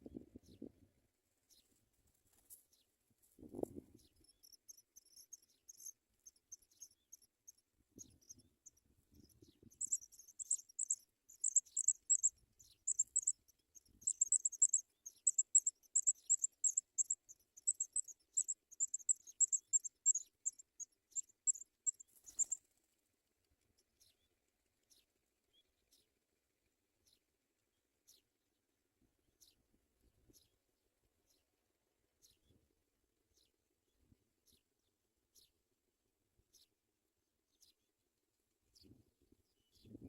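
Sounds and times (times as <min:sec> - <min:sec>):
nestlings cheeping: 0:09.8 - 0:22.6.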